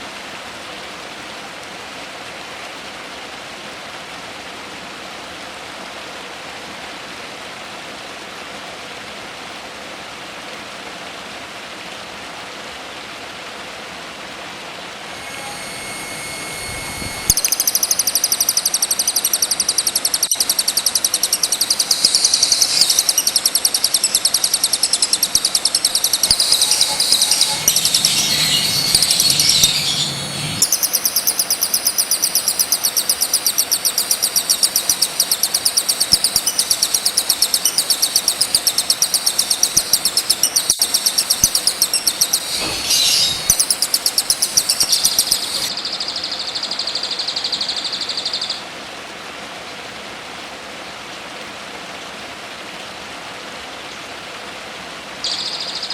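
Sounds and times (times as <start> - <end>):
rain-like hiss: 0.0 - 55.9
songbird chirping: 15.1 - 48.6, 55.3 - 55.9.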